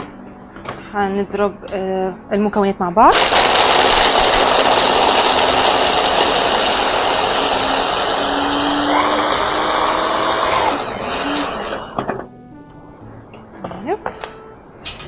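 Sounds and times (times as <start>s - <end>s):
electric blender running: 3.1s - 12.3s.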